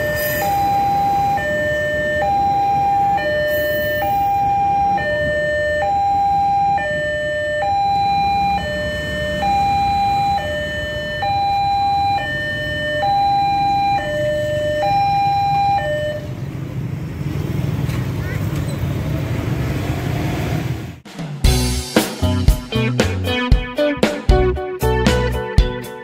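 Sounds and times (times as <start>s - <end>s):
two-tone crossing alarm: 0.0s - 16.6s
motorcycle engines: 0.0s - 21.0s
road traffic: 0.0s - 26.0s.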